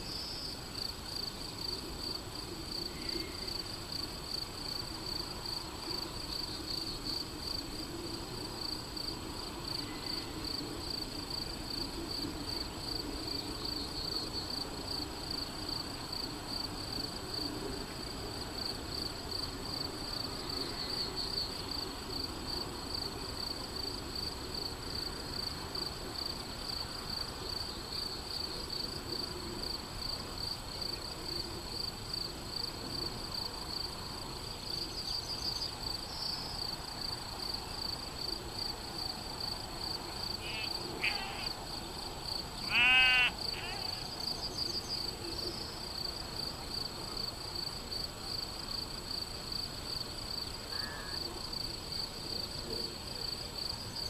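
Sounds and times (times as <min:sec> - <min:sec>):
crickets chirping: 0:00.0 - 0:54.0
brief animal calls: 0:40.4 - 0:41.6, 0:42.6 - 0:44.1.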